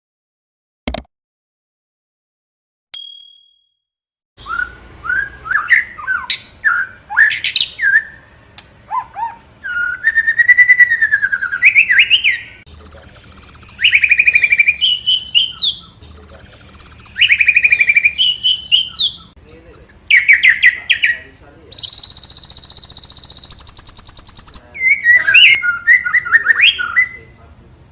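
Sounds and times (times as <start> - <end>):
click: 0.9 - 1.1
bird singing whistles and trills: 4.4 - 27.4.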